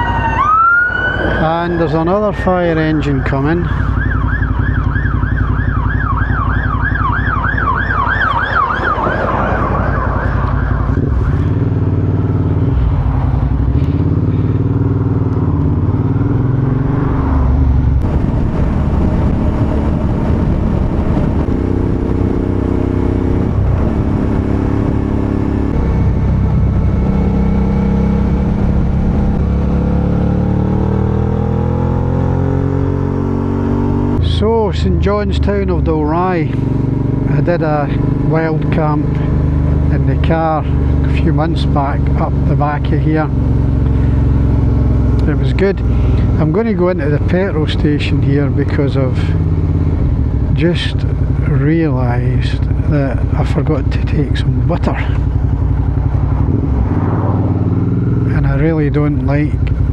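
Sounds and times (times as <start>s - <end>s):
fire engine siren warbling: 0.0s - 12.3s, 23.4s - 33.4s
motorcycle engine running: 2.0s - 8.8s, 10.2s - 59.9s.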